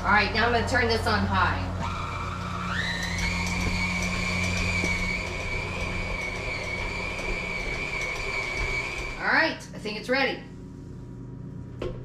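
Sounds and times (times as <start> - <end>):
stand mixer motor whine: 0.0 - 9.2.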